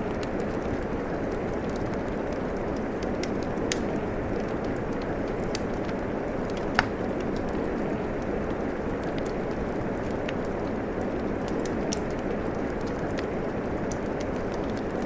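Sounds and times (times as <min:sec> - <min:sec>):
crackling wood fire: 0:00.0 - 0:15.0
steady rain: 0:00.0 - 0:15.0
sharp fire pops: 0:03.0 - 0:07.2.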